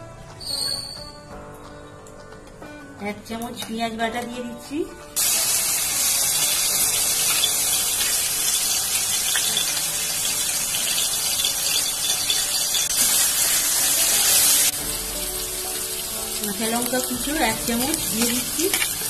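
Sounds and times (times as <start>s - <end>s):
paste sizzling in hot oil: 5.2s - 19.0s.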